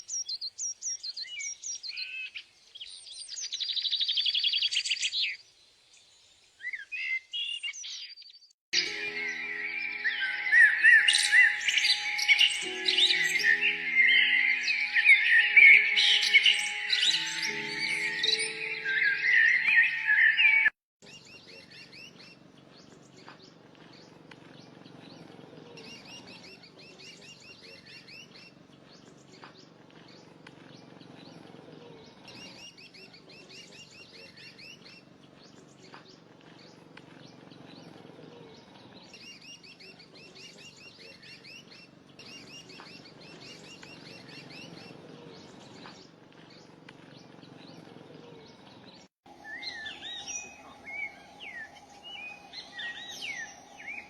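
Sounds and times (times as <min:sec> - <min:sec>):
birds chirping trilled phrases: 0:08.8 - 0:22.2, 0:47.4 - 0:54.0.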